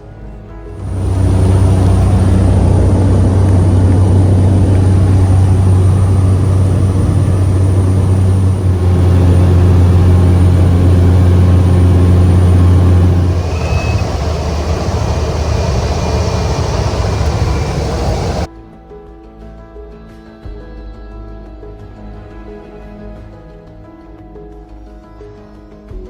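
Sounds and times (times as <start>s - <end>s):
engine drone with high whine: 0.7s - 18.5s.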